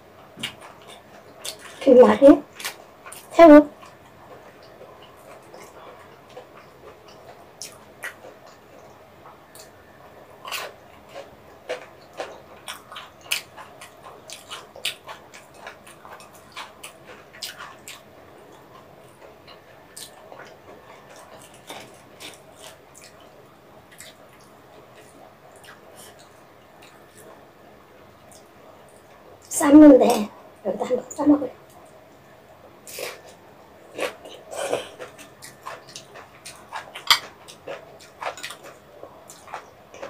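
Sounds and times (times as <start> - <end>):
crisp crunching while chewing: 2.5 - 27.4, 32.9 - 40.0.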